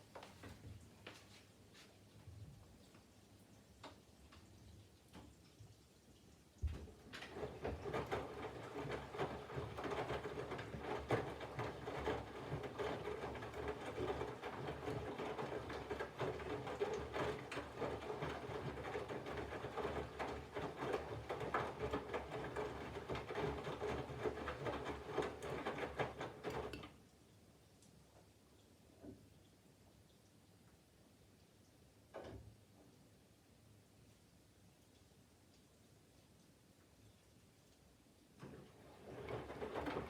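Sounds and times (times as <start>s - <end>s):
laundry and water splashing: 0.4s - 26.9s, 38.3s - 40.0s
washing machine motor hum: 6.7s - 26.8s, 38.4s - 40.0s.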